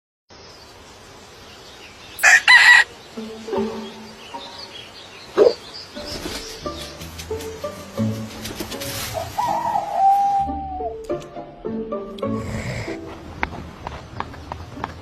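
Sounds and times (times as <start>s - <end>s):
chicken calling: 2.2s - 3.0s, 9.0s - 11.0s.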